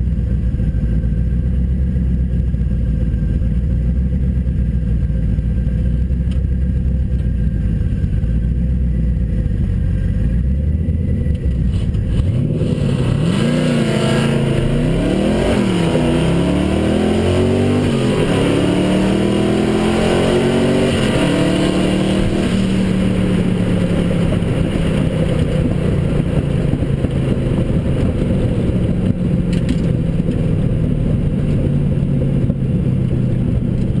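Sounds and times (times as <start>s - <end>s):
car engine revving and shifting: 11.2s - 32.8s.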